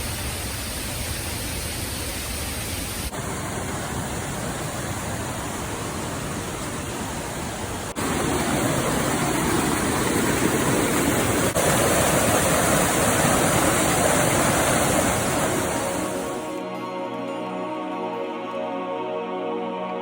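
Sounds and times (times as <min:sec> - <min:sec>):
waterfall rushing: 0:02.2 - 0:16.6.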